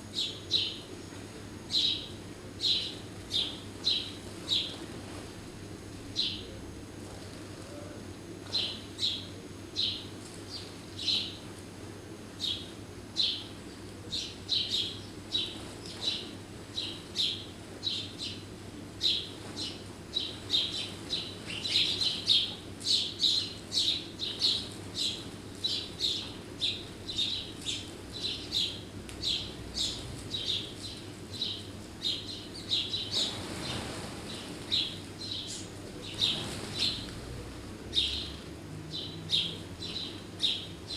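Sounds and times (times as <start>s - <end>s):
faint low hum: 0.0s - 40.9s
birds chirping: 1.7s - 4.8s, 14.1s - 37.1s, 37.9s - 40.9s.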